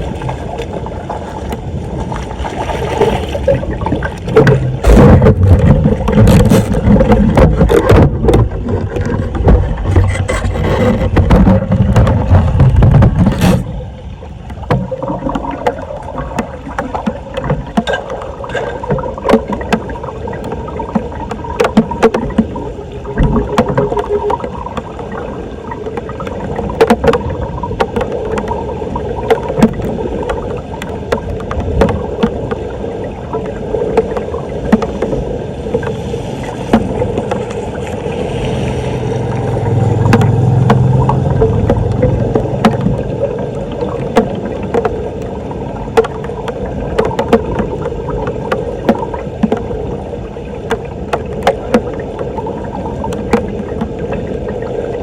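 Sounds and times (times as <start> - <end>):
floodwater splashing and gurgling: 0.0 - 55.0
sharp clicks and knocks: 4.2 - 13.7, 14.5 - 22.6, 29.3 - 32.6, 40.0 - 43.1, 46.0 - 49.7
low drone: 35.5 - 44.0.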